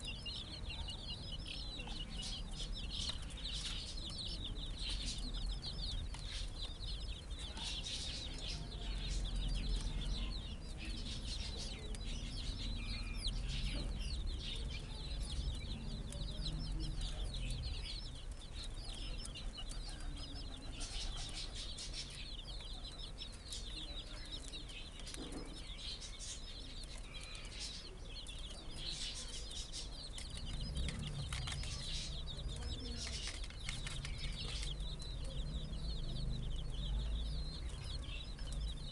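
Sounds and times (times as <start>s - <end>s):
low rumble: 0.0s - 20.7s, 29.5s - 38.9s
chicks cheeping: 0.0s - 38.9s.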